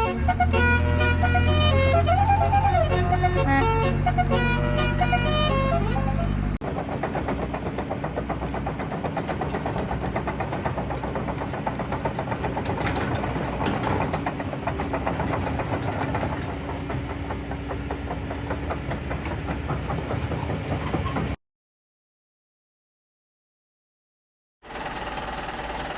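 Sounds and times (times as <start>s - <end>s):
toy truck motor rattling: 0.0s - 6.1s.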